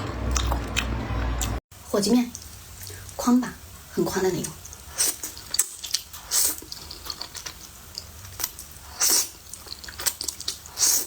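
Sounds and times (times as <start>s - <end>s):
mouth clicks while chewing: 4.7s - 11.0s
slurping noodles: 4.7s - 11.0s.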